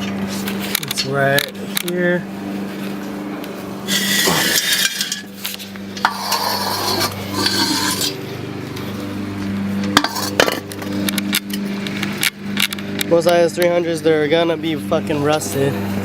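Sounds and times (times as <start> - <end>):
steady low hum: 0.0 - 16.0
metal exhaust parts scraping: 3.6 - 9.0, 9.8 - 13.1.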